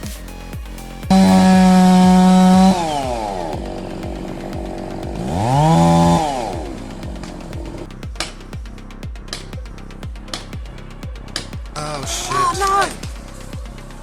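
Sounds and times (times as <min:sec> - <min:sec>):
chainsaw engine revving: 0:01.1 - 0:03.9, 0:04.6 - 0:07.2.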